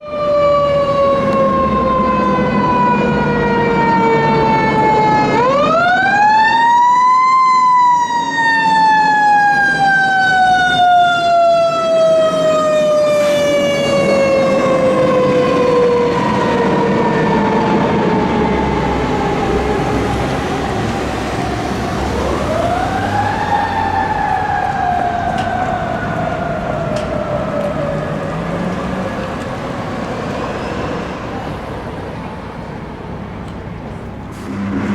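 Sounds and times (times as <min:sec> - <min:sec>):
mechanical siren wailing: 0:00.0 - 0:31.0
truck engine rumbling: 0:07.8 - 0:34.9.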